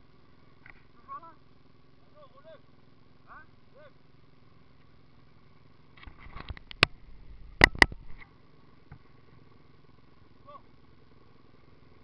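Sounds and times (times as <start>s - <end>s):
faint steady hum: 0.0s - 12.0s
sharp clicks and knocks: 6.0s - 7.0s, 7.6s - 8.3s.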